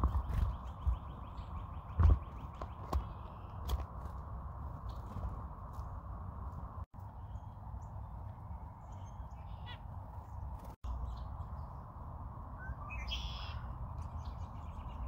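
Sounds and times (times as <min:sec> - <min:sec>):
wild bird calls: 0:08.7 - 0:10.4, 0:12.8 - 0:15.0.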